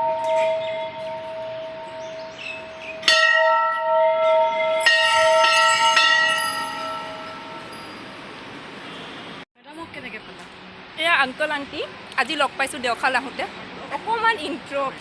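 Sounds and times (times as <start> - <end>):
temple bell ringing: 0.0 - 8.4.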